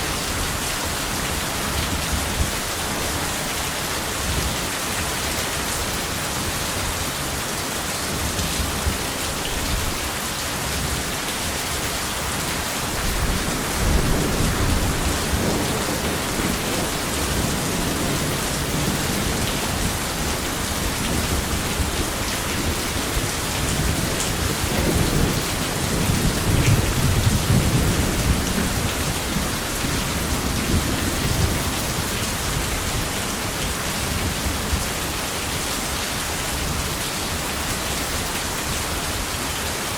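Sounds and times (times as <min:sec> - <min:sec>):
heavy rain: 0:00.0 - 0:39.9
thunder rumbling: 0:13.0 - 0:33.1.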